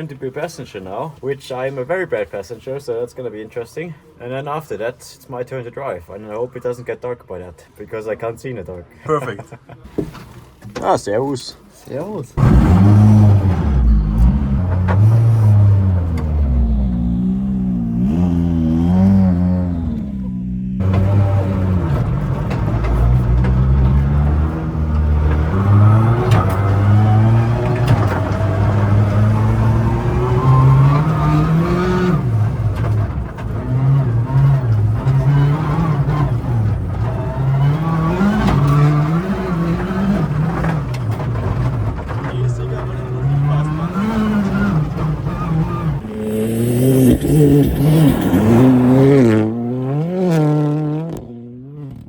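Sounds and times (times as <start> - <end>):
car engine revving hard: 12.4 - 52.0.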